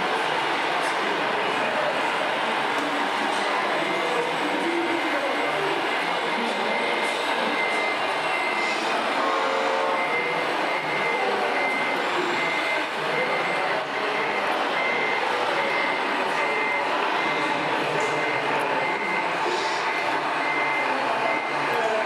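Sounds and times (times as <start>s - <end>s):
steady background noise: 0.0s - 22.0s
reversing beeper short high beeps: 5.3s - 21.6s.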